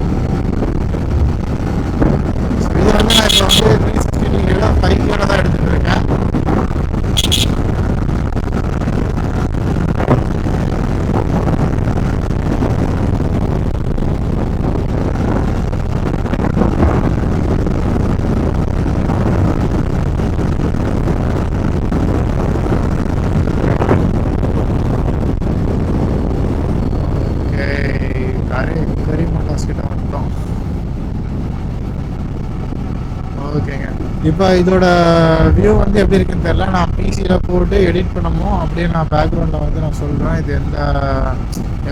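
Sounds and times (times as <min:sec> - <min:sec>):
wind rush over microphone: 0:00.0 - 0:41.9
motorcycle engine: 0:03.0 - 0:03.7, 0:07.2 - 0:07.6.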